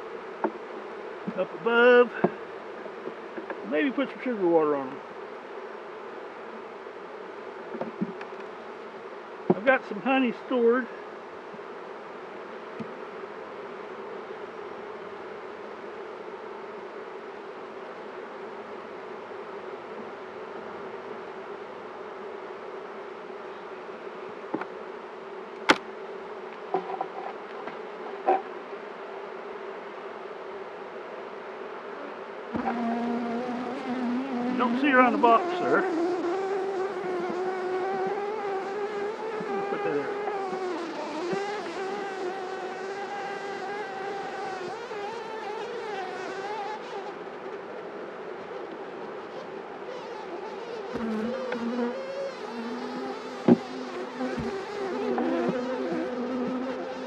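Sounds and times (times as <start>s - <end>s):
honeybees buzzing: 32.2s - 47.8s, 48.4s - 57.0s.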